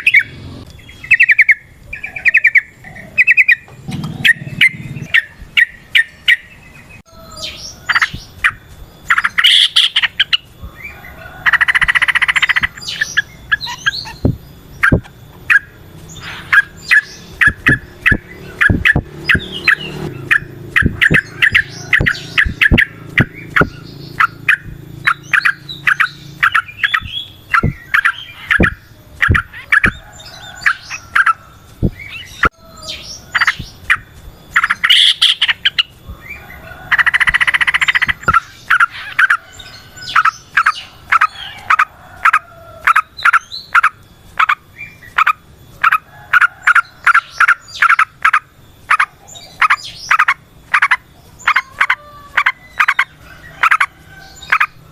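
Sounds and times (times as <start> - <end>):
bird singing sharp chirps: 0.0 - 41.7
buzzy bird trill: 0.0 - 54.9.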